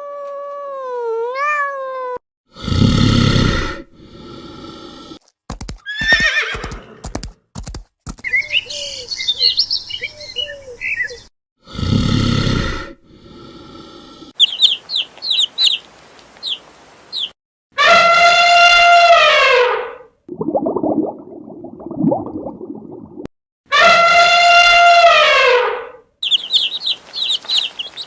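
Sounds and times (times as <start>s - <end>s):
birds chirping: 8.2s - 11.3s, 14.4s - 17.4s, 26.2s - 28.0s.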